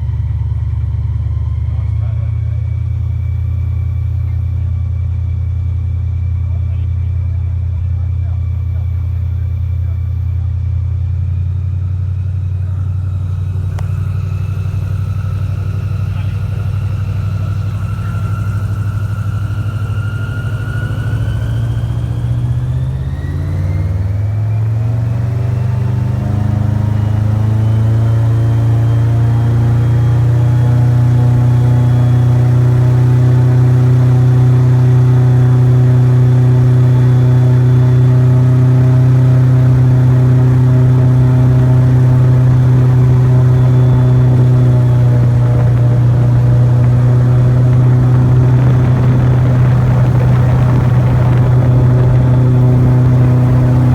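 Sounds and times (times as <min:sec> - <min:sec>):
airboat engine and propeller: 0:11.6 - 0:53.9.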